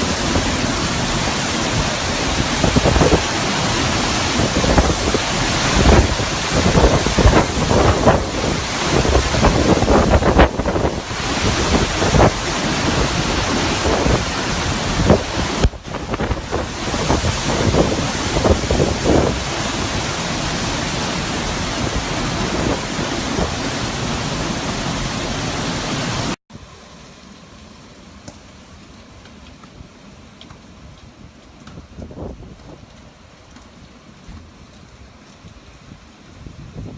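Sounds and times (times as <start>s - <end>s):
wind buffeting microphone: 0.0s - 24.8s, 31.7s - 33.0s, 35.4s - 36.9s
hurricane wind gusts: 0.0s - 26.4s, 29.7s - 36.9s
steady hiss of rain: 0.0s - 36.9s.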